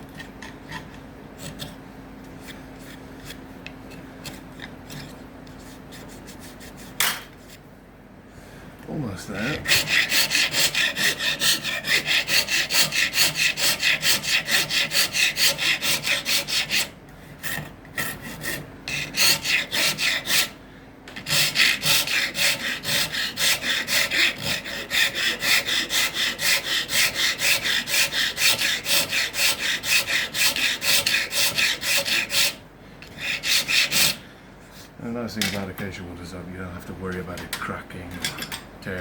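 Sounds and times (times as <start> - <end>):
hand tool rasping wood: 9.4 - 34.2.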